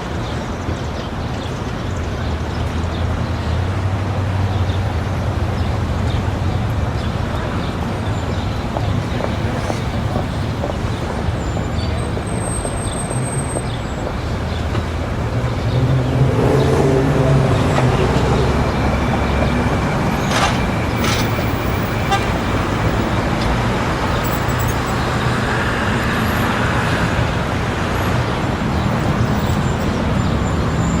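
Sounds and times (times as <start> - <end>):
people in the street: 0.0 - 31.0
road traffic: 0.0 - 31.0
vehicle passing: 8.7 - 31.0.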